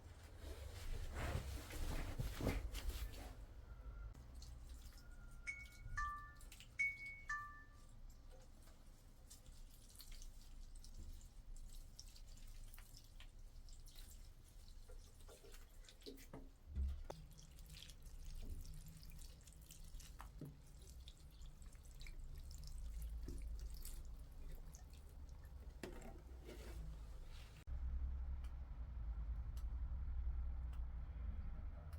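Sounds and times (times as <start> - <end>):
water dripping: 4.2 - 25.8
low hum: 27.7 - 31.9.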